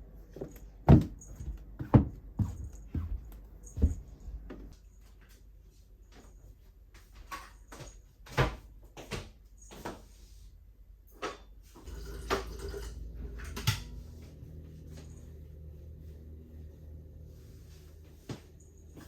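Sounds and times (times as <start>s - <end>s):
low steady rumble: 11.9s - 19.0s.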